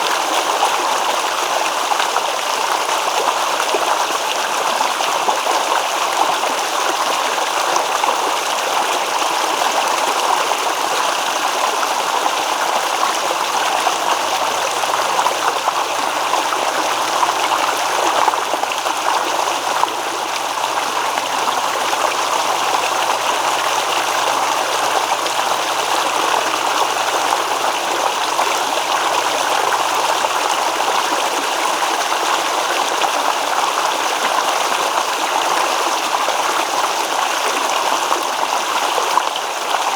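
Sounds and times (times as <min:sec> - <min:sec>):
stream babbling: 0:09.8 - 0:34.0.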